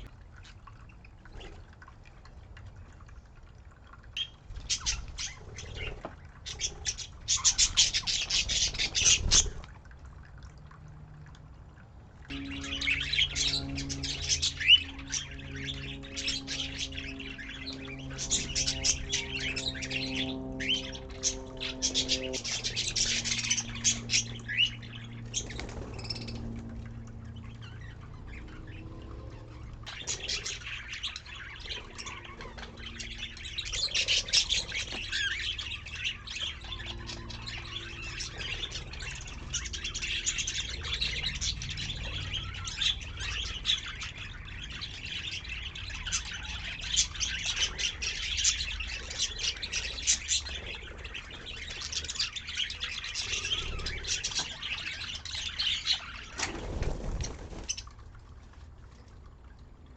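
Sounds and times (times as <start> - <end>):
steady low hum: 0.0 - 59.9
budgerigars chattering and chirping: 4.2 - 9.5, 12.3 - 26.5, 27.4 - 57.9.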